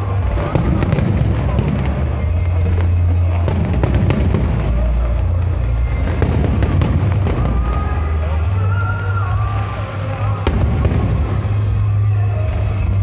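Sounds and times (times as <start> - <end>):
fireworks booming: 0.0 - 8.6, 10.3 - 12.1
fireworks crackling: 0.0 - 13.0.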